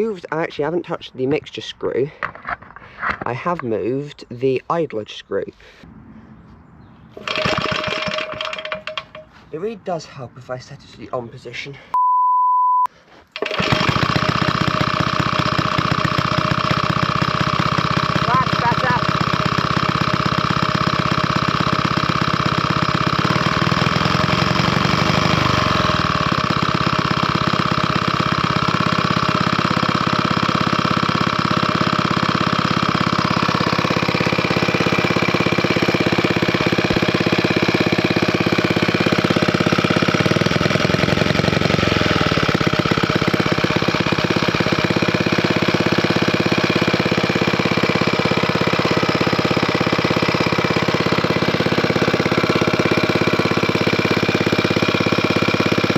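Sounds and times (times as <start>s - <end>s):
stationary engine running: 7.2s - 9.2s, 13.4s - 55.9s.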